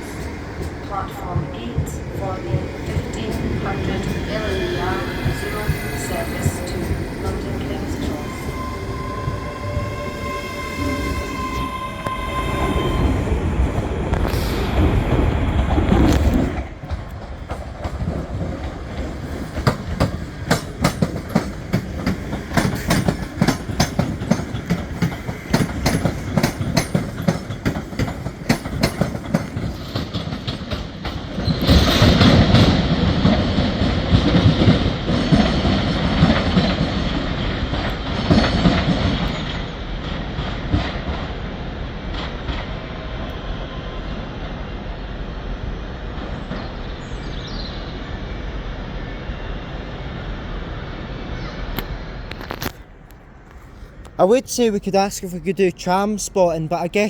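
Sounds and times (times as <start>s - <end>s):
train wheels clicking over rails: 0.0s - 43.6s
train rushing noise: 0.0s - 57.0s.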